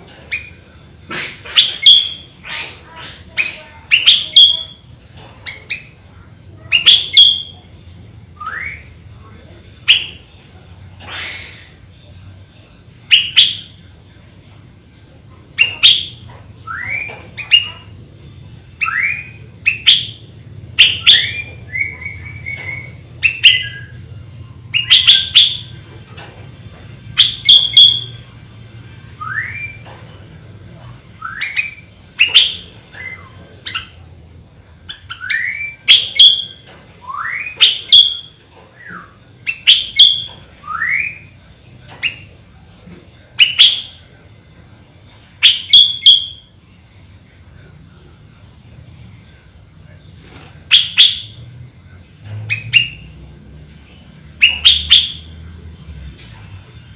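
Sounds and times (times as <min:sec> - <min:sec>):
bird whistled song: 0:01.4 - 0:02.6, 0:03.4 - 0:04.8, 0:06.7 - 0:07.6, 0:08.4 - 0:08.9, 0:13.1 - 0:13.7, 0:15.6 - 0:17.9, 0:18.8 - 0:20.2, 0:20.8 - 0:24.0, 0:24.7 - 0:25.7, 0:27.2 - 0:28.2, 0:29.2 - 0:29.9, 0:31.2 - 0:34.0, 0:34.9 - 0:41.4, 0:43.4 - 0:44.0, 0:45.4 - 0:46.5, 0:50.7 - 0:51.4, 0:52.5 - 0:53.2, 0:54.4 - 0:55.4.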